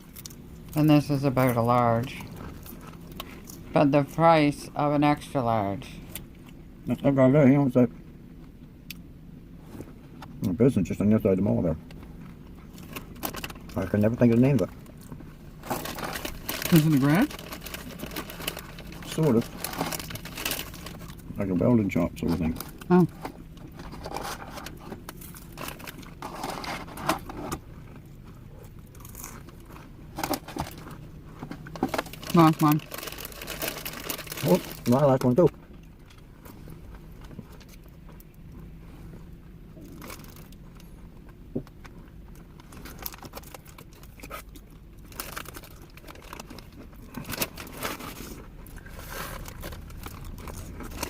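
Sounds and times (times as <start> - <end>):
low hum: 0.0 - 51.0
food packaging crinkling: 15.6 - 21.3, 22.4 - 27.5, 28.9 - 35.4, 42.6 - 51.0
takeout box rustling: 22.7 - 27.7.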